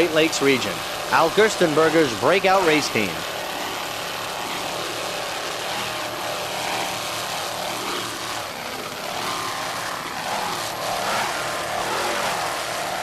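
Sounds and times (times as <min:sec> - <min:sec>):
powerboat engines roaring: 0:00.0 - 0:03.3.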